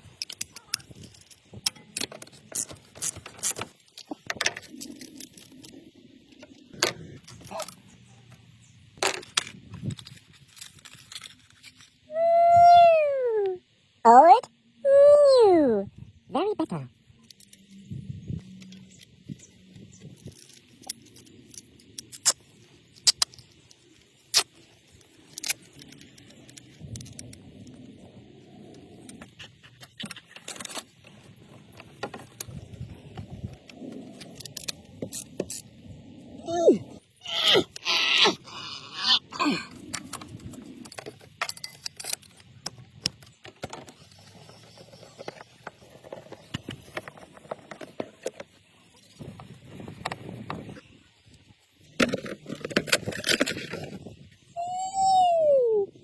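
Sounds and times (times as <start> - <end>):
tools and parts clinking: 0.0 - 8.1, 18.4 - 27.8, 39.7 - 48.7.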